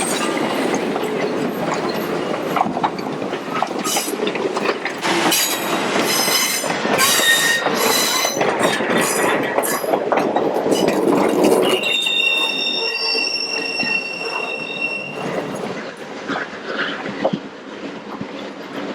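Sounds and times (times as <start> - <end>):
train wheels clicking over rail joints: 0.0 - 18.9
high-pitched wheel squeal: 5.3 - 9.9, 11.5 - 15.7.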